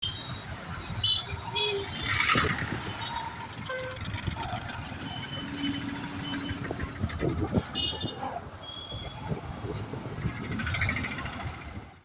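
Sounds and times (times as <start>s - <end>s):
motor vehicles passing: 0.5s - 12.0s
car horn toots: 7.6s - 9.2s.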